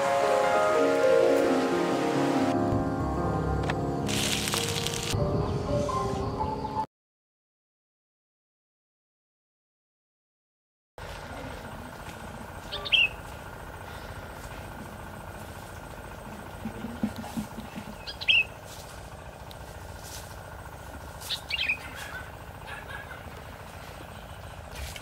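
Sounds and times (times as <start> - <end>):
low outdoor background hum: 0.0 - 6.9, 11.0 - 25.0
bird calls: 12.6 - 14.2, 16.6 - 18.7, 21.1 - 25.0.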